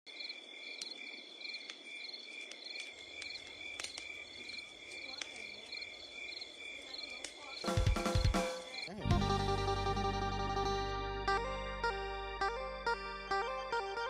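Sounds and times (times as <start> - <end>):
insects trilling: 0.1 - 9.1
faint clicks: 2.4 - 4.2.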